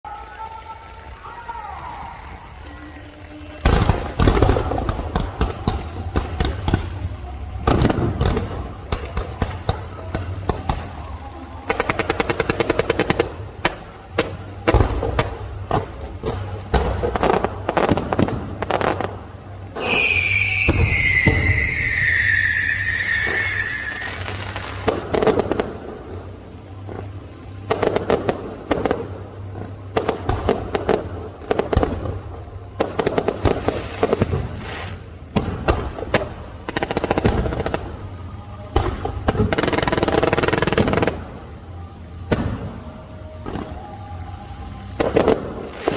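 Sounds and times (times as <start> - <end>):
fireworks banging and crackling: 0.3 - 45.9
falling firework whistle: 19.7 - 24.9.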